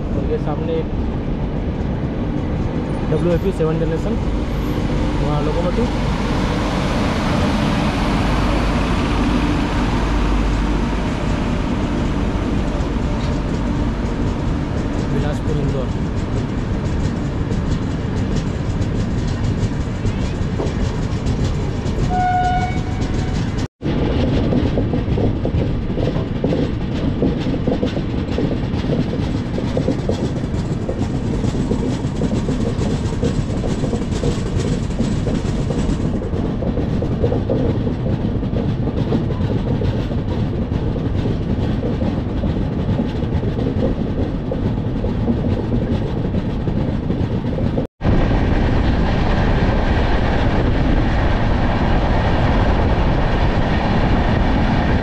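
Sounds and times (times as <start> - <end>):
train wheels rumbling: 0.0 - 55.0
train horn: 22.1 - 23.3.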